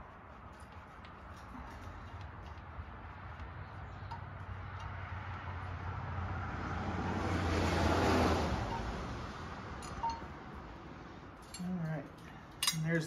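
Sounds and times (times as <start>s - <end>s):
vehicle passing by: 1.6s - 11.4s.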